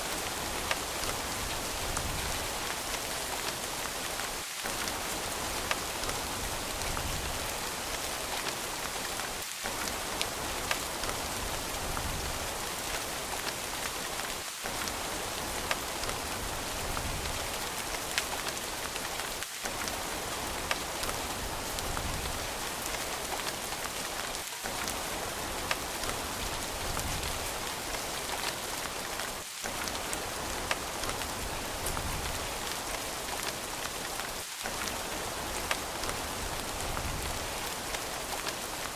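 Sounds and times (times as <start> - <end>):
steady rain hiss: 0.0 - 38.9
raindrops ticking: 13.3 - 38.9.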